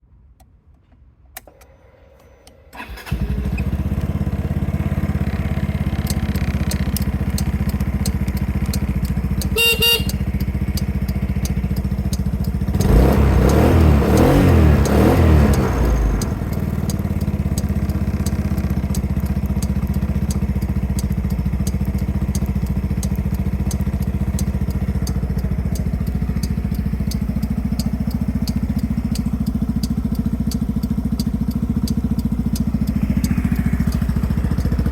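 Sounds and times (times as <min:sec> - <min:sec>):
scooter engine starting and idling: 0:01.4 - 0:34.9
short horn beep: 0:09.4 - 0:10.5.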